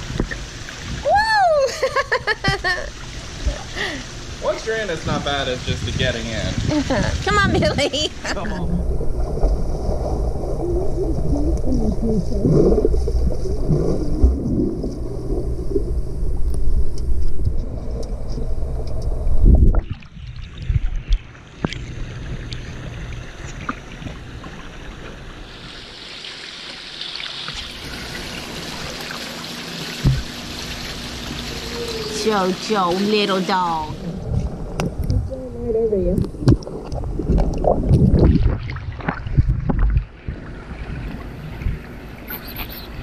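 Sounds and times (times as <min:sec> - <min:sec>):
water lapping and splashing: 0:00.0 - 0:01.2, 0:01.8 - 0:43.0
muffled underwater water churning: 0:02.6 - 0:43.0
single knock: 0:30.0 - 0:30.3.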